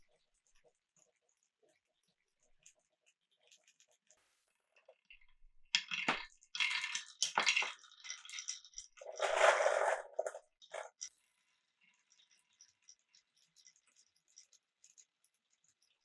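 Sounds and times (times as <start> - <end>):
marbles clacking on marble run: 5.8 - 15.1
rush of marbles rolling: 6.0 - 11.5.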